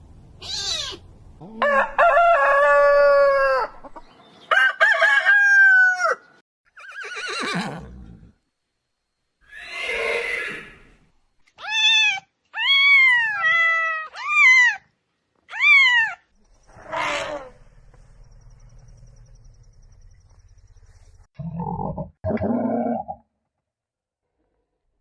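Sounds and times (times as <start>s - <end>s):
cat meowing: 0.4s - 1.0s, 11.6s - 14.8s, 15.5s - 16.2s.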